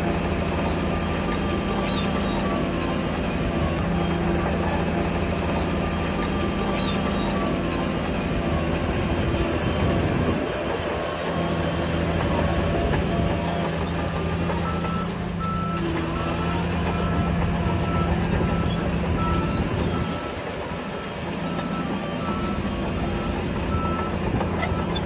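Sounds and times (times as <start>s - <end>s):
diesel engine running: 0.0s - 25.0s
reversing alarm beeping: 11.2s - 25.0s.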